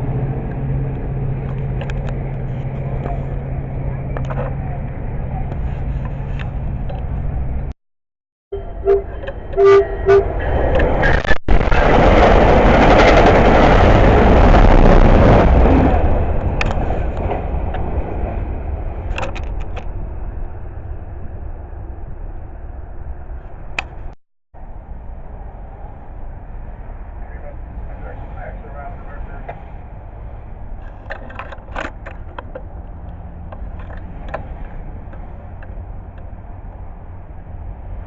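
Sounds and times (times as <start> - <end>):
train horn blasts: 8.5 - 10.7
train wheels rushing on rail: 10.3 - 20.9.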